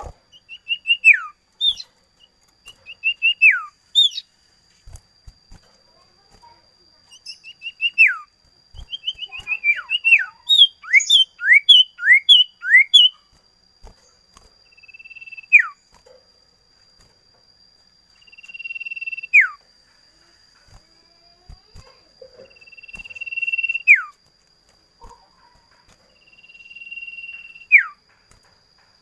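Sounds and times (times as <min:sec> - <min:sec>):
bird singing: 0:00.0 - 0:04.4, 0:05.9 - 0:13.3, 0:14.0 - 0:15.9, 0:18.1 - 0:24.2, 0:25.0 - 0:28.2.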